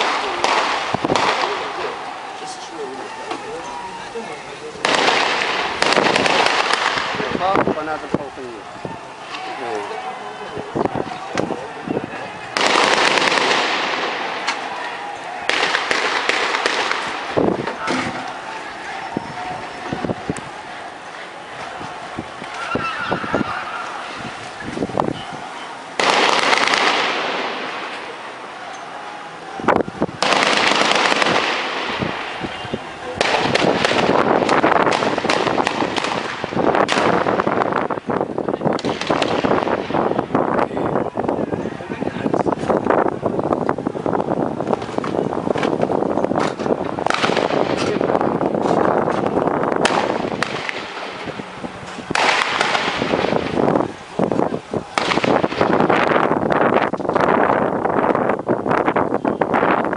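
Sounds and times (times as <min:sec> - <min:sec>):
gunfire bursts: 0:00.0 - 0:02.0, 0:04.8 - 0:07.5, 0:12.6 - 0:14.7, 0:15.3 - 0:18.2, 0:26.0 - 0:28.1, 0:30.2 - 0:32.4, 0:33.1 - 0:37.7, 0:47.0 - 0:48.1, 0:49.8 - 0:51.3, 0:52.1 - 0:53.5, 0:55.0 - 0:55.9
constant rushing noise: 0:00.0 - 0:59.9.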